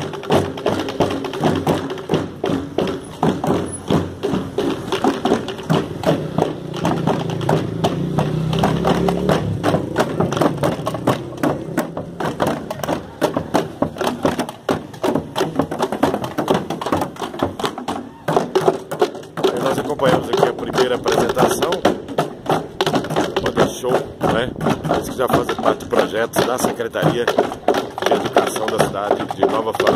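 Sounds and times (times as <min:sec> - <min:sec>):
marching band drums: 0:00.0 - 0:29.9.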